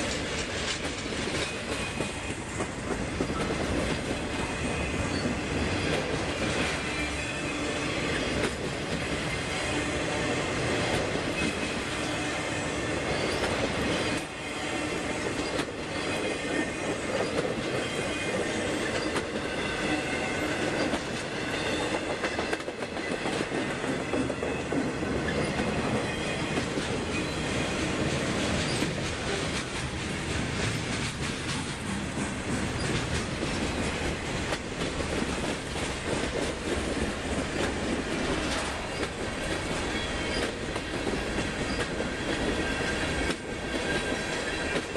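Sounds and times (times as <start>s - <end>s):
train wheels clattering: 0.0s - 44.9s
high wheel squeal: 4.2s - 8.5s, 11.4s - 23.2s, 24.3s - 28.0s.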